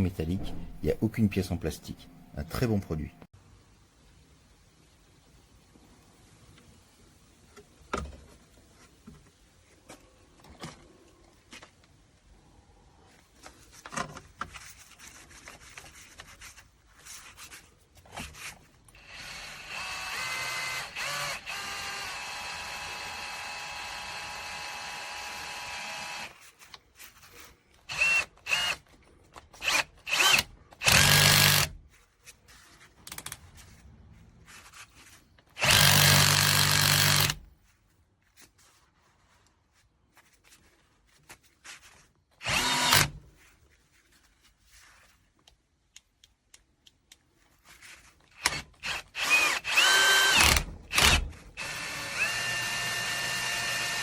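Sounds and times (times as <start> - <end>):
power drill running: 19.0 - 26.4, 27.9 - 28.8, 29.6 - 31.7, 35.6 - 37.4, 42.4 - 43.2, 48.4 - 54.0.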